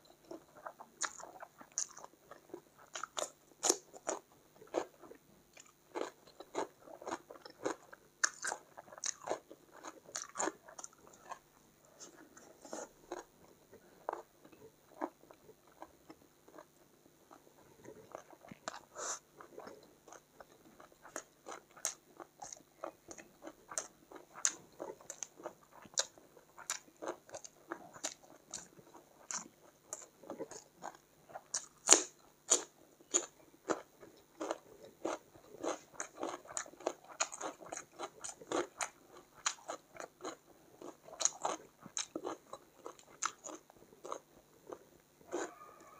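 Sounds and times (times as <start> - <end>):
person chewing and crunching food: 0.0 - 45.9.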